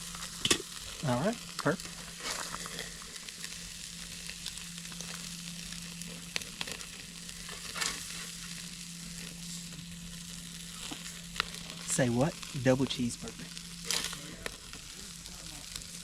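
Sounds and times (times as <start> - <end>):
patties sizzling: 0.0 - 16.0.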